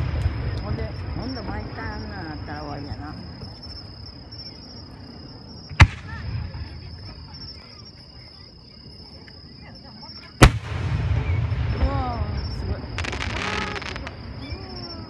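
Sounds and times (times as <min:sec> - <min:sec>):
firework bang: 0:05.8 - 0:06.7, 0:10.4 - 0:14.5.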